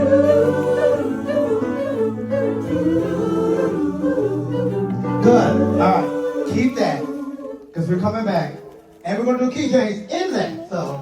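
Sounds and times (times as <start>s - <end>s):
choir singing in harmony: 0.0s - 8.8s.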